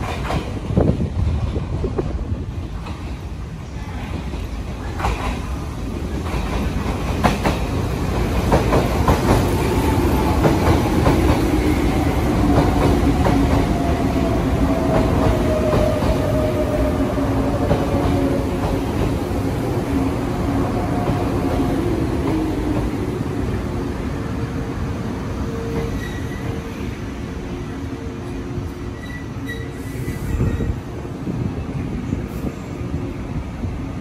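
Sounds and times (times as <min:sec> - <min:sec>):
train wheels clacking over rail joints: 0:04.2 - 0:11.8.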